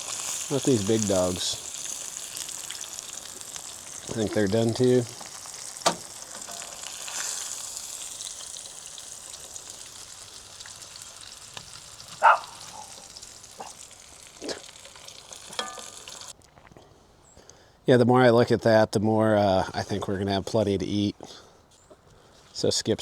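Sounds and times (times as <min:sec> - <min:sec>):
fish frying in hot grease: 0:00.0 - 0:16.4.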